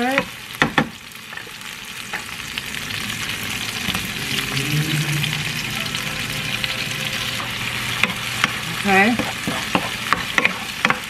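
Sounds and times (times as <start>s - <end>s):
tomatoes sizzling in hot oil: 0.0s - 11.0s
short low hum: 2.9s - 7.4s.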